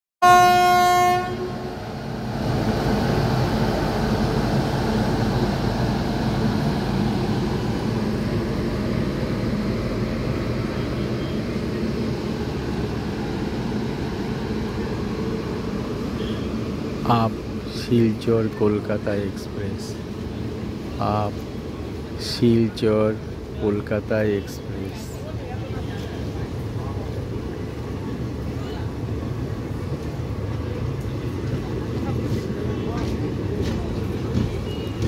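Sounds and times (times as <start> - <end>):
electric locomotive horn blast: 0.2 - 1.7, 16.2 - 16.6
train coaches rumbling on track: 0.2 - 35.0.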